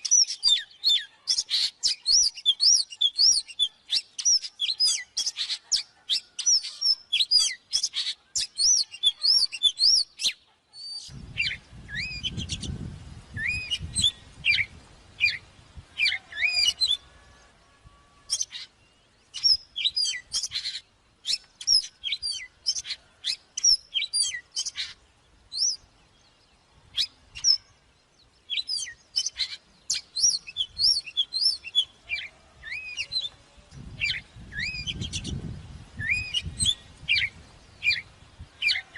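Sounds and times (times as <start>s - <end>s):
bird singing: 0.0s - 38.9s.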